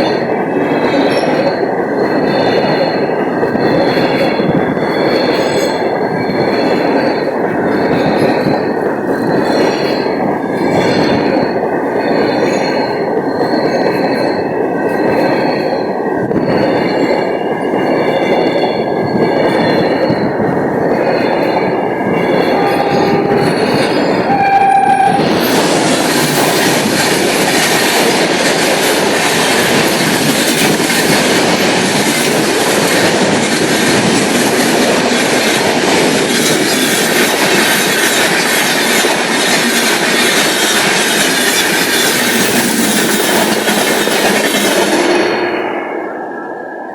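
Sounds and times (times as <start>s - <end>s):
train wheels clattering: 0.0s - 46.0s
high wheel squeal: 21.2s - 27.4s
brief tones: 22.3s - 25.6s.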